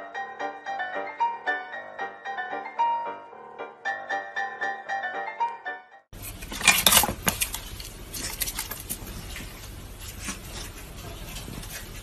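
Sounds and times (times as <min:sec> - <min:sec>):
rustling and clattering: 0:06.2 - 0:12.0.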